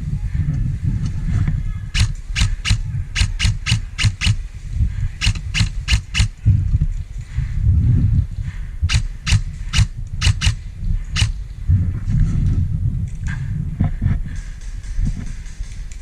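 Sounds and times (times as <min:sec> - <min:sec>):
wind rumble on microphone: 0:00.0 - 0:16.0
airsoft rifle shots: 0:02.0 - 0:04.4, 0:05.2 - 0:06.4, 0:08.9 - 0:10.6, 0:11.2 - 0:11.4.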